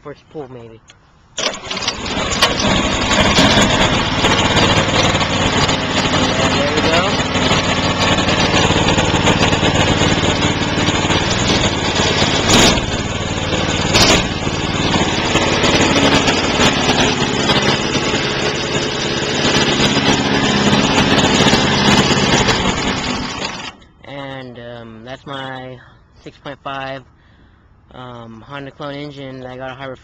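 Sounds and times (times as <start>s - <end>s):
sharp engine knocks: 1.4s - 23.7s
small engine running: 1.4s - 23.8s.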